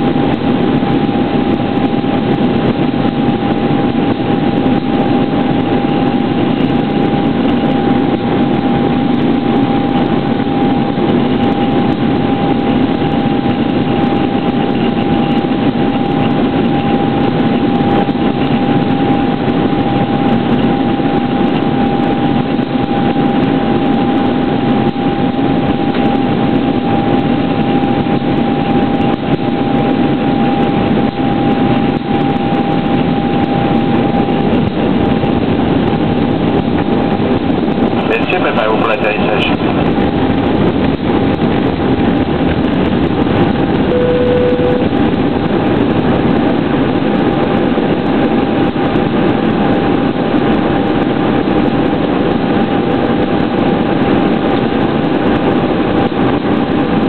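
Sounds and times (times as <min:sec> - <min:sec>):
aircraft cabin engine hum: 0:00.0 - 0:57.0
steady whining tone: 0:23.8 - 0:46.2.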